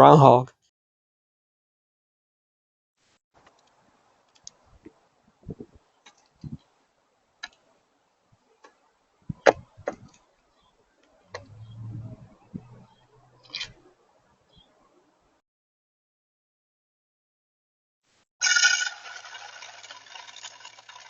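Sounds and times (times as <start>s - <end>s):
low thuds: 9.3s - 10.1s, 11.3s - 13.0s
brief low hum: 11.3s - 13.8s.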